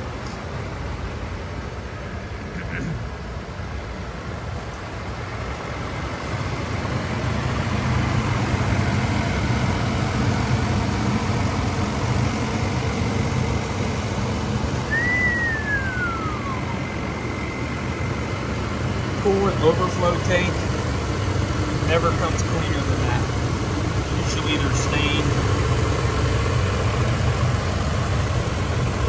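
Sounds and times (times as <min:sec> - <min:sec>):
car engine idling: 0:00.0 - 0:29.0
thin rising whistle: 0:14.8 - 0:17.8.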